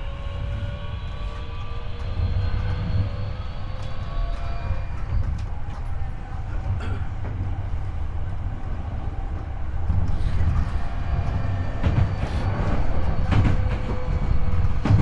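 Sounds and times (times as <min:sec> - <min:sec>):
train wheels rumbling: 0:00.0 - 0:15.0
wheels clacking over rail joints: 0:10.0 - 0:15.0.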